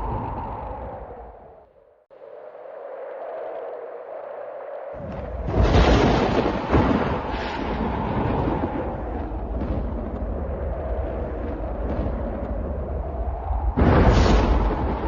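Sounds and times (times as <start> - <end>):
thunder crashing and rumbling: 5.0 - 15.0.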